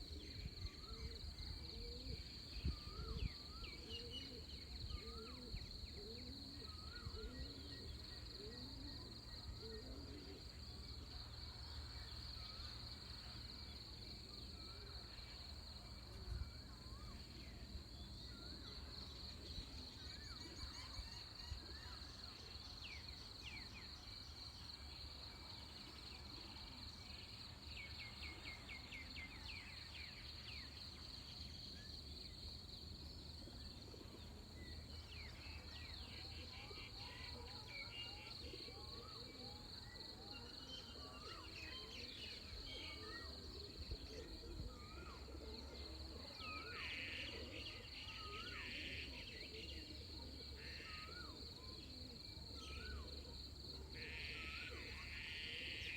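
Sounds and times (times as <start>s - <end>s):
bird calls and chirps: 0.0s - 9.8s, 33.4s - 53.2s.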